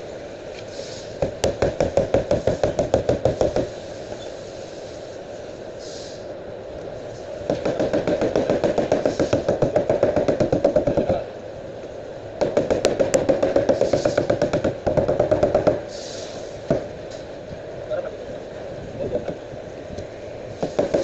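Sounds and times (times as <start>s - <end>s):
rapid tapping on car panel: 1.2s - 3.7s, 7.5s - 11.2s, 12.4s - 15.8s, 20.6s - 21.0s.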